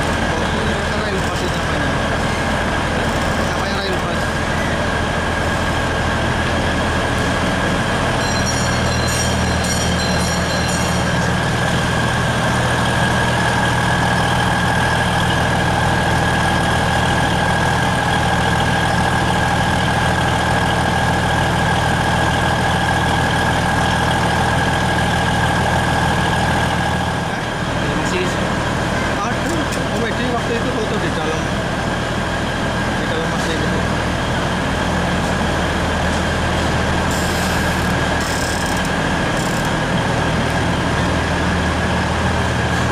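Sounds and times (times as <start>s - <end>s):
passenger train rumbling: 0.0s - 42.9s.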